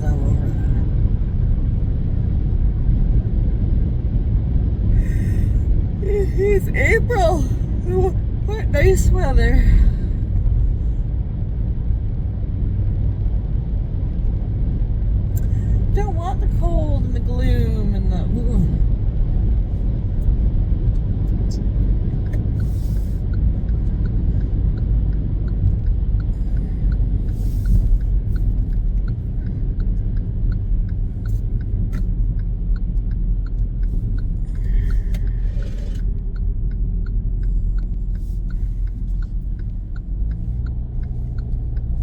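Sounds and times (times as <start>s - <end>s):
car engine and road noise rumble: 0.0s - 42.0s
light regular ticking: 19.4s - 42.0s.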